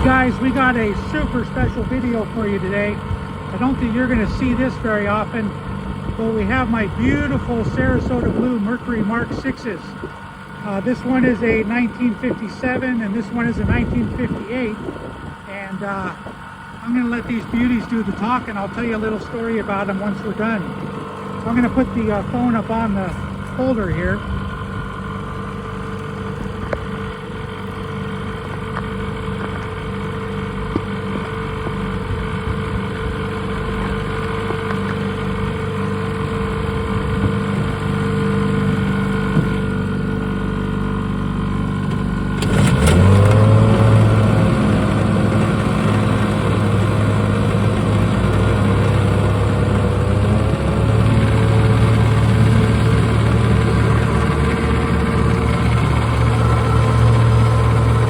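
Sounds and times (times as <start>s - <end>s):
outboard motor running: 0.0s - 58.0s
engine starting with click: 41.9s - 43.5s.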